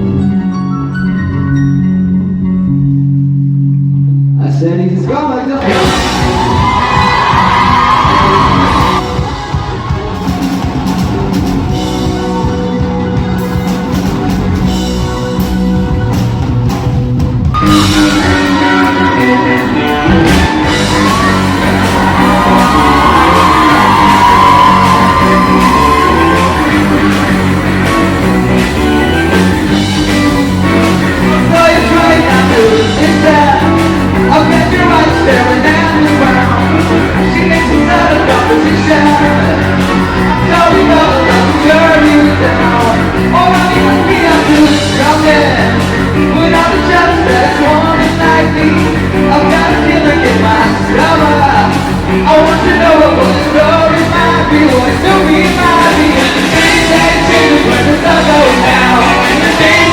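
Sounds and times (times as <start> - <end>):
rock band with electric guitar: 0.0 - 4.4, 5.4 - 59.9
person singing: 5.2 - 10.5, 17.6 - 59.9.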